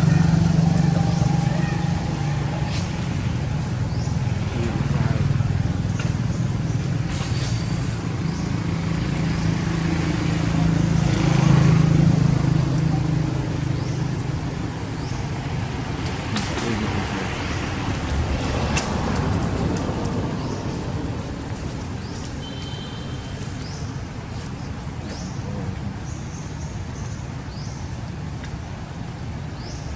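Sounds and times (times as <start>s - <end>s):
vehicle engine passing: 0.0s - 22.2s.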